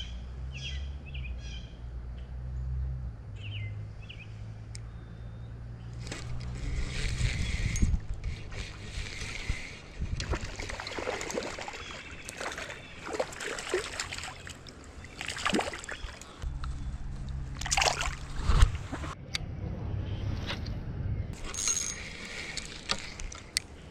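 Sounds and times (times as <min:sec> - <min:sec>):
water sloshing and splashing: 0:08.2 - 0:16.4, 0:17.1 - 0:19.2, 0:21.4 - 0:23.9.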